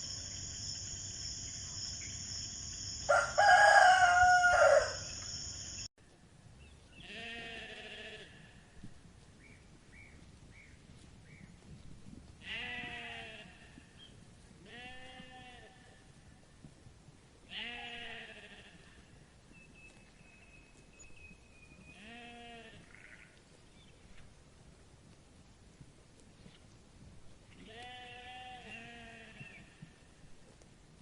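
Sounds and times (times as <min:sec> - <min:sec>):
sheep bleating: 0:07.0 - 0:08.5, 0:12.4 - 0:13.7, 0:17.5 - 0:18.8, 0:22.0 - 0:23.3, 0:27.6 - 0:29.6.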